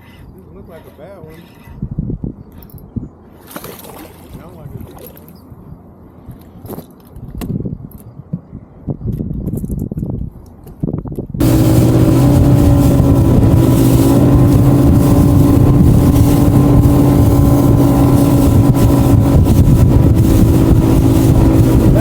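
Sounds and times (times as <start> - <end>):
outboard motor running: 11.4 - 22.0.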